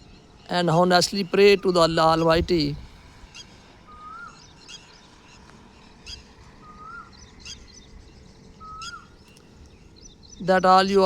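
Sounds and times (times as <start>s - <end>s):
bird whistling: 3.9s - 4.8s, 6.6s - 7.2s, 8.6s - 9.4s.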